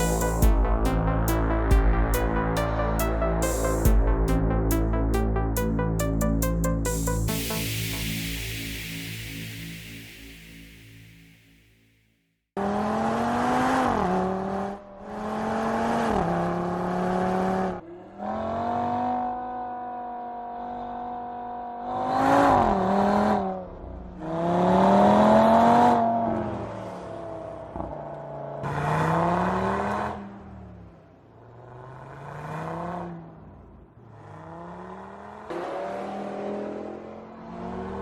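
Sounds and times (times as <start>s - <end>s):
car engine accelerating through gears: 12.6s - 38.0s.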